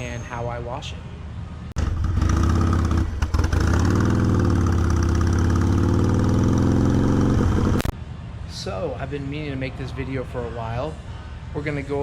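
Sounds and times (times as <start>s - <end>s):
motorcycle engine idling: 1.8s - 7.8s.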